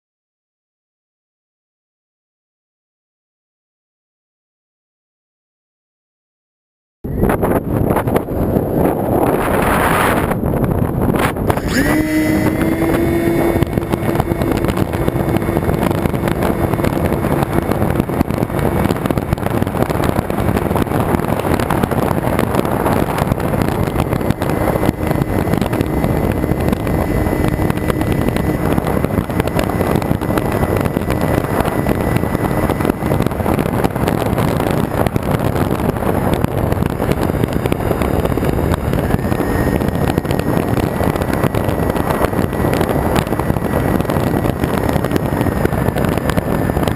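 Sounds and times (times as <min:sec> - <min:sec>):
wind rushing over camera: 0:07.0 - 0:46.9
electric motors whining: 0:11.0 - 0:46.9.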